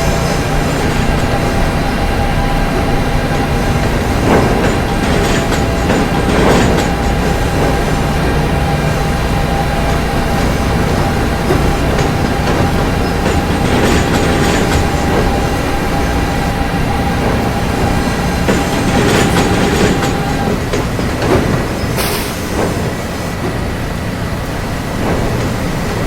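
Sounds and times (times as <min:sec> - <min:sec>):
subway train rumble: 0:00.0 - 0:26.0
wheel clatter over rail joints: 0:00.0 - 0:26.0.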